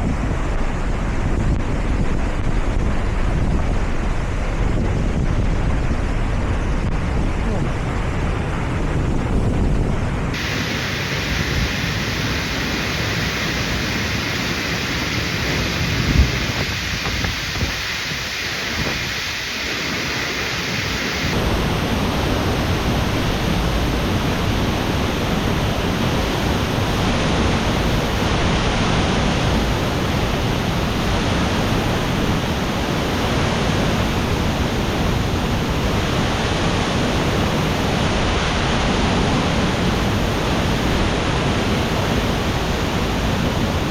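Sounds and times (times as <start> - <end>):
waterfall rushing: 10.0 - 43.9
heavy rain hiss: 10.2 - 43.9.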